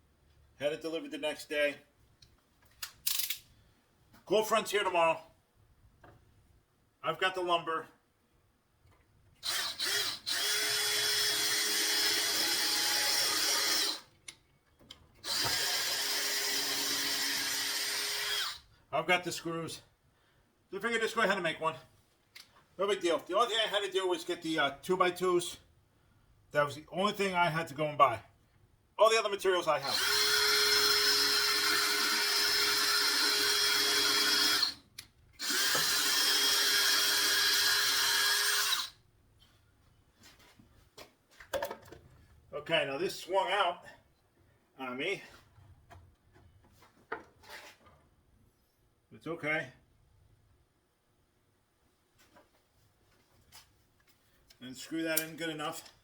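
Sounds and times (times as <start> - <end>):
power drill driving screws: 9.4 - 14.1, 15.2 - 18.6, 29.8 - 34.8, 35.4 - 39.0.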